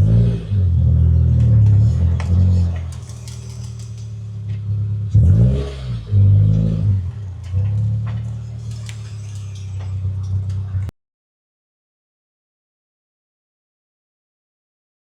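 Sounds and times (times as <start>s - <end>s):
car engine running and revving: 0.0s - 10.9s.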